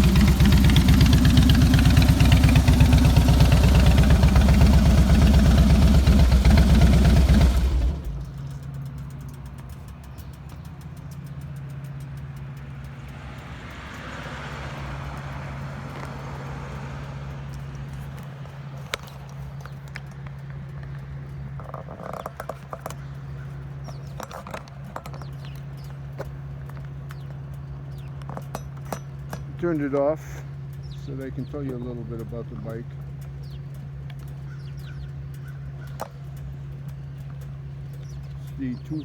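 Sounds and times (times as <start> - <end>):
motorcycle engine idling: 0.0 - 39.0
sharp clicks: 0.0 - 39.0.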